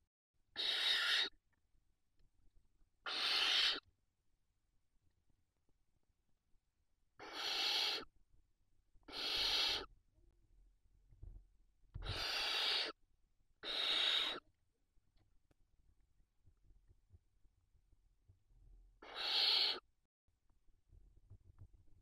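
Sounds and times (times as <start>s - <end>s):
barn owl hissing: 0.6s - 1.4s, 3.0s - 3.9s, 7.2s - 8.1s, 9.1s - 9.9s, 12.0s - 13.0s, 13.6s - 14.5s, 19.0s - 19.9s.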